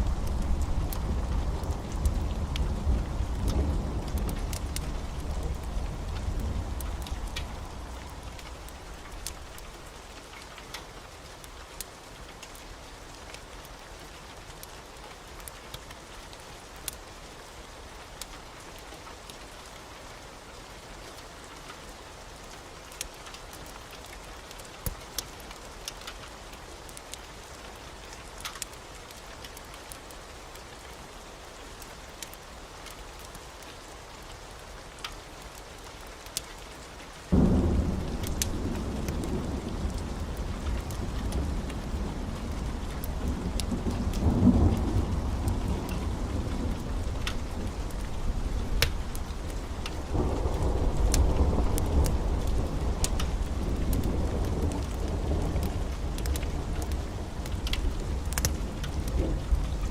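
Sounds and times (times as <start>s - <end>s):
low rumble of thunder: 0.0s - 10.0s, 37.3s - 59.9s
steady rain: 0.0s - 59.9s
sharp ticks and pops: 3.4s - 10.9s, 28.4s - 28.8s, 37.3s - 59.9s.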